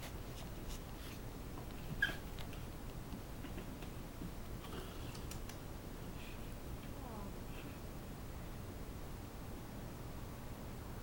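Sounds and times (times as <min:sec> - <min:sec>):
faint scattered clicks: 0:05.1 - 0:05.6.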